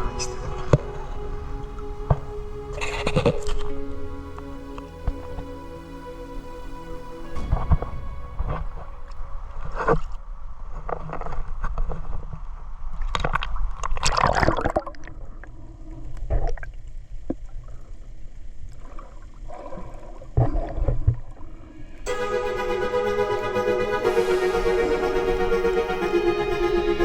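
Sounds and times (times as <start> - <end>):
low rumble: 0.0 - 10.8.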